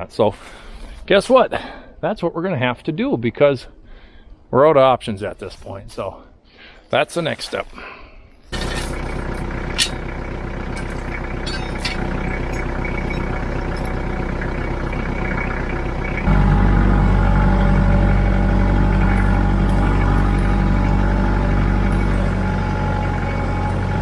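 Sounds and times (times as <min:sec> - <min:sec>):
engine running: 0:08.6 - 0:24.0.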